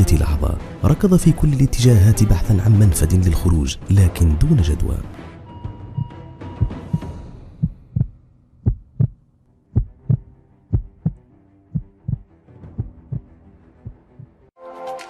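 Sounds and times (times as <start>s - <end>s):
heartbeat double thuds: 6.0s - 9.2s, 9.8s - 11.2s, 11.8s - 13.3s.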